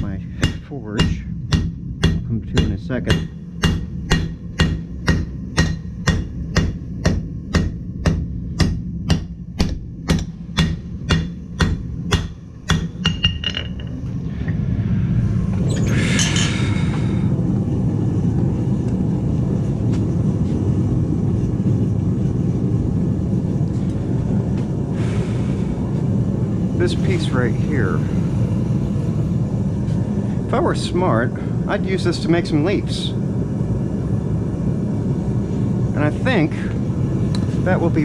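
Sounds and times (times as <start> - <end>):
hammer striking metal on anvil: 0.0 - 14.0
low rumble: 0.0 - 38.0.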